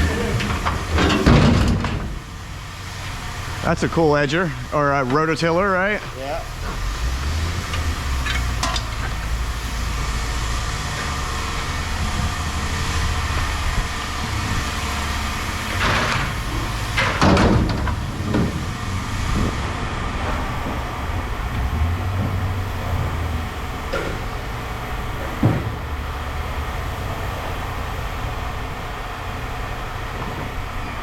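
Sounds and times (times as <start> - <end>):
scrap metal clanking: 0.0 - 2.3
low engine rumble: 0.0 - 31.0.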